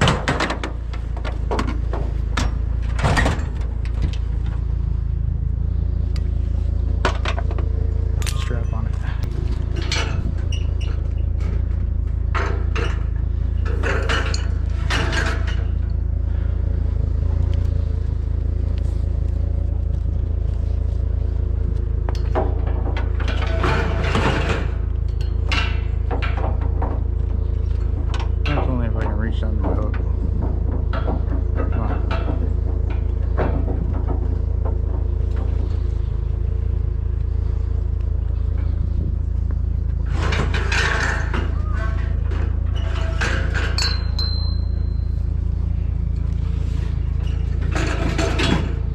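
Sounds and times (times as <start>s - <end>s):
vehicle engine rumbling: 0.0s - 48.9s
metal scrap clanking: 7.0s - 16.1s, 22.2s - 37.7s, 40.0s - 48.9s.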